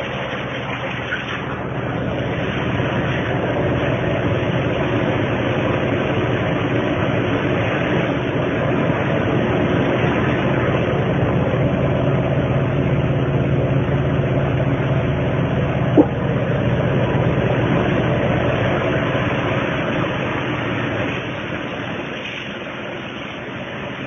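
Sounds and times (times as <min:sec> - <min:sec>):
machine humming: 0:15.7 - 0:17.1.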